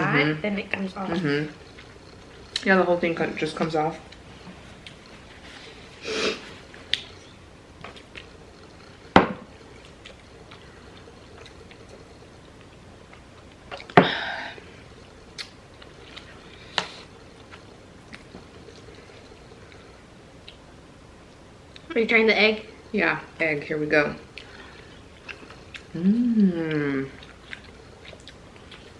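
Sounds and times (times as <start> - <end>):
chewing: 1.0 - 2.7, 3.6 - 14.0, 15.0 - 20.7, 24.3 - 26.0, 26.6 - 28.9.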